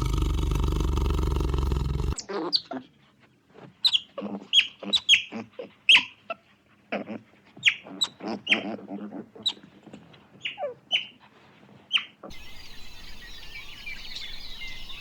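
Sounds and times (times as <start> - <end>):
loud rushing roar: 0.0 - 2.2
farm birds chirping: 11.9 - 15.0.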